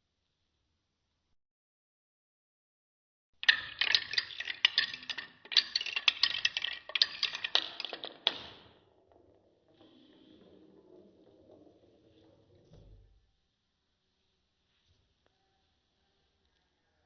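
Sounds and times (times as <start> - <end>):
balls clattering down wooden track: 3.4 - 13.2.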